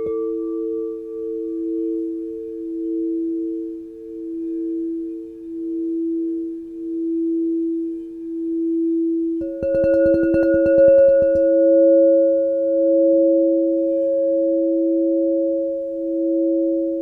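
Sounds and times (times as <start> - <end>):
low singing bowl tone: 0.0 - 17.0
fast rattling of bowl: 9.4 - 11.6
higher singing bowl ringing: 9.4 - 17.0.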